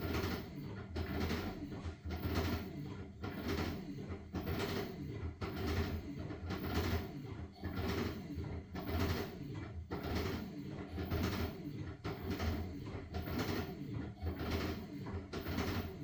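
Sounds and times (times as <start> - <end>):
washing machine motor hum: 0.0 - 16.0
washing machine water swishing: 0.0 - 16.0.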